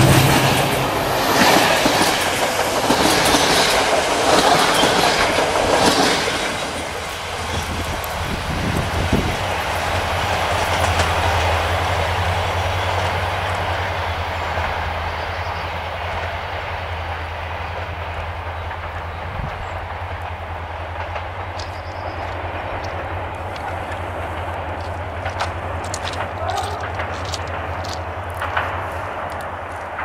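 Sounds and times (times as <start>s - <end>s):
low locomotive drone: 0.0s - 30.0s
train wheels clicking over rail joints: 0.0s - 30.0s.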